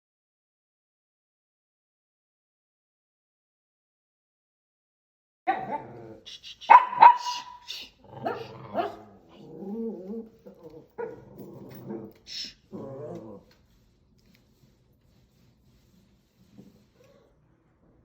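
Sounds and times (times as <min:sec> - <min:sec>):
dog barking: 0:05.5 - 0:06.1, 0:06.7 - 0:09.2.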